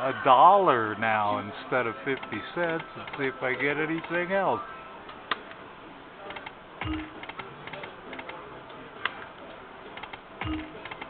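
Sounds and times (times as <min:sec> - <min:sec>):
faint music: 0:00.0 - 0:11.0
sharp clicks: 0:06.3 - 0:08.4, 0:10.0 - 0:11.0
slot machine reels clicking: 0:06.8 - 0:08.4, 0:10.0 - 0:11.0.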